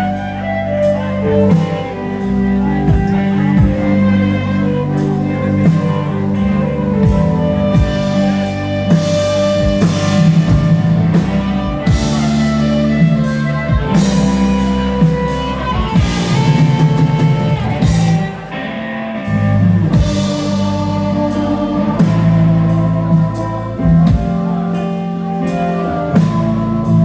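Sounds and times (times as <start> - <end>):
rock band playing: 0.0 - 27.0.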